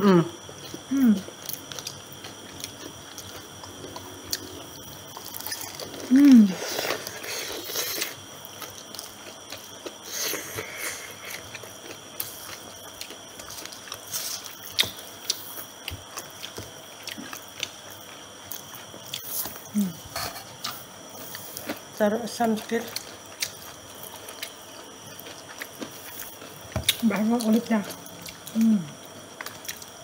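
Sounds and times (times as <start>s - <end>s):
crunching fried chicken: 0.4s - 19.6s.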